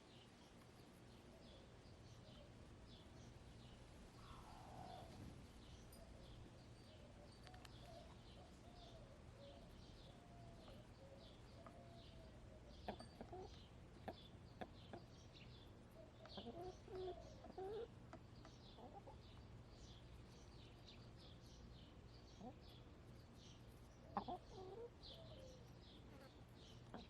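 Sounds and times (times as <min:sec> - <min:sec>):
small bird chirping: 0:00.1 - 0:27.0
hens murmuring calls: 0:04.2 - 0:05.3, 0:08.9 - 0:15.1, 0:16.0 - 0:19.2, 0:24.0 - 0:25.6.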